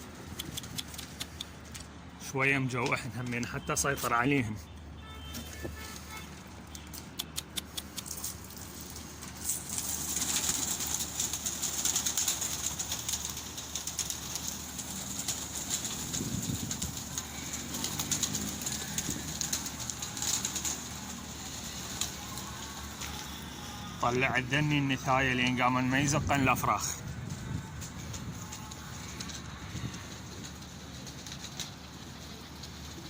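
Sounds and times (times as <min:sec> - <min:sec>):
pigeon wings flapping: 0:00.0 - 0:01.8, 0:05.2 - 0:33.0
sharp clicks: 0:00.2 - 0:01.9, 0:06.6 - 0:08.4.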